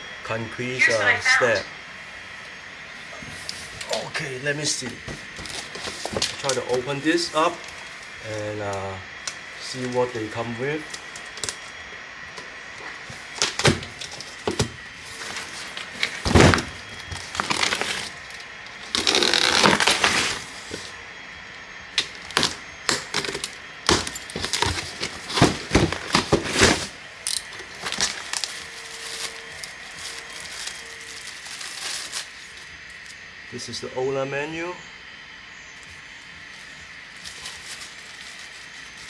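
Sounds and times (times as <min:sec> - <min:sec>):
parts cracking and crinkling: 0:04.8 - 0:08.5, 0:10.8 - 0:21.0, 0:21.9 - 0:33.2, 0:35.8 - 0:39.0
cardboard box being opened: 0:13.4 - 0:20.9, 0:23.2 - 0:27.0, 0:27.6 - 0:32.3
rustling: 0:24.1 - 0:32.7, 0:36.5 - 0:39.0.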